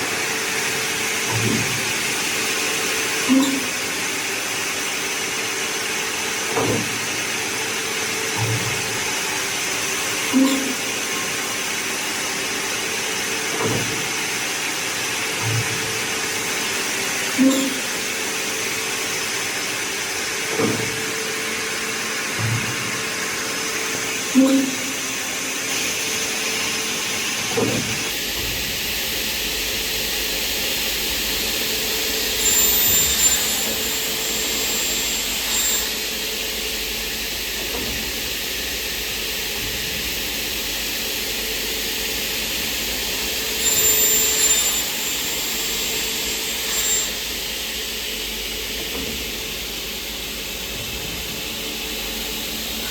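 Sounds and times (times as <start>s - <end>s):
machine motors and air hissing: 0.0s - 29.9s, 30.5s - 41.4s, 42.2s - 52.9s
high ringing tones: 32.2s - 36.1s, 43.5s - 47.5s.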